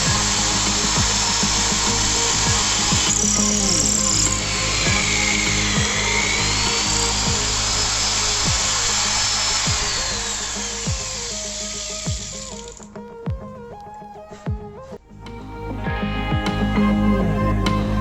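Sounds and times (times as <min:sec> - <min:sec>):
power drill grinding: 0:00.0 - 0:13.3
electronic music with bass sweeps: 0:00.0 - 0:18.0.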